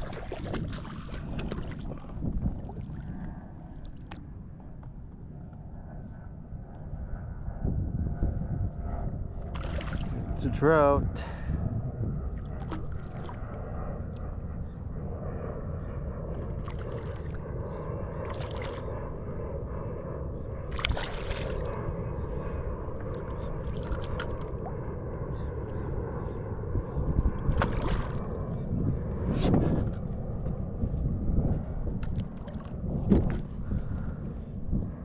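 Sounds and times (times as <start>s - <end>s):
water sloshing against kayak: 0.0s - 4.2s, 12.6s - 13.6s, 20.7s - 21.8s, 27.5s - 28.4s
wind rumble on microphone: 0.0s - 35.0s.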